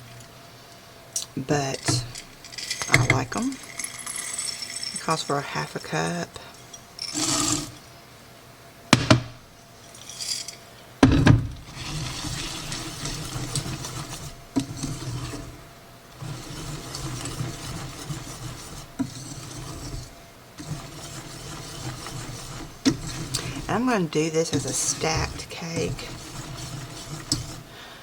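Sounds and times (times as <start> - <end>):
kitchenware knocking: 9.0 - 9.4
scraping and rubbing: 11.6 - 27.7.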